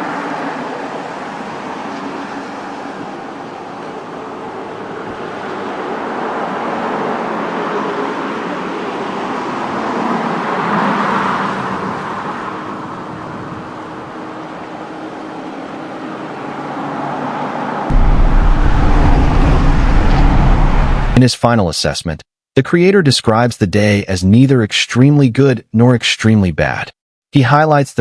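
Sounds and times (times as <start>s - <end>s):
vehicle passing: 0.0s - 21.2s.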